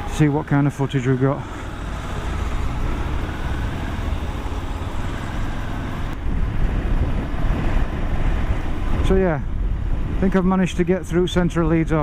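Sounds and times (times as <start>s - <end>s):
motorcycle engine running: 0.0s - 9.0s
road noise: 0.0s - 12.0s
wind noise on microphone: 5.0s - 12.0s.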